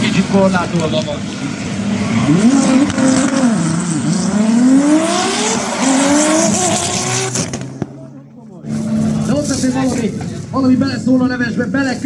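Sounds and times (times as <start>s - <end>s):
car engine accelerating: 1.2s - 10.5s.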